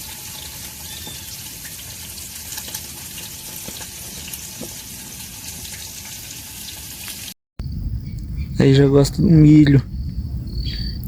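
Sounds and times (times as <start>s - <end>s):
food sizzling in a pan: 0.0s - 7.4s
crackles and pops: 7.0s - 8.7s.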